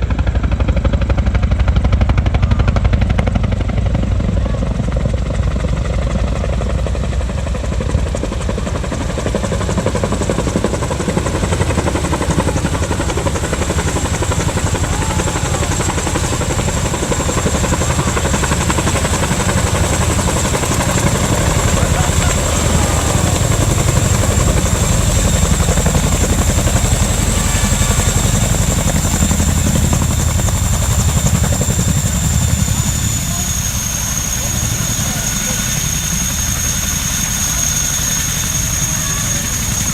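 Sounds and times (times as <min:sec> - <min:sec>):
helicopter rotor beat: 0:00.0 - 0:39.9
turbine whine: 0:08.7 - 0:39.9.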